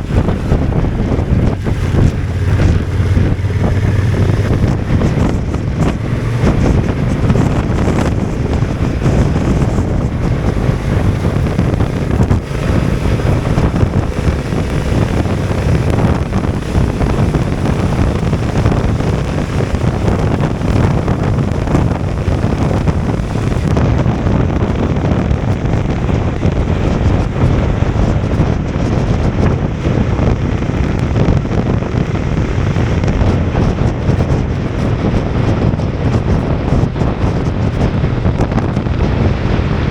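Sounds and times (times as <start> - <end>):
motorcycle running: 0.0 - 39.9
wind buffeting microphone: 0.0 - 39.9.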